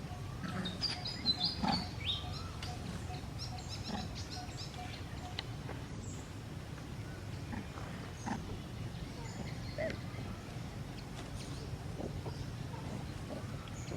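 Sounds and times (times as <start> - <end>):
high chirping calls: 0.0 - 5.5
steady low rumble: 1.2 - 13.9.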